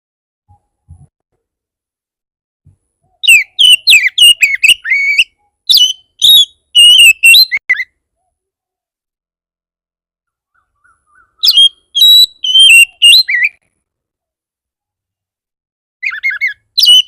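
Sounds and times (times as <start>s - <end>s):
magpie-robin singing whistled notes: 3.2s - 8.0s, 10.5s - 13.6s, 16.0s - 17.0s.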